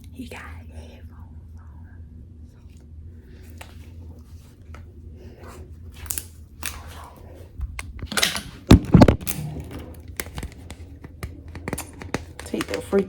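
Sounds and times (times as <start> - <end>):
low steady hum: 0.0 - 13.0
objects crinkling and scraping: 7.8 - 13.0.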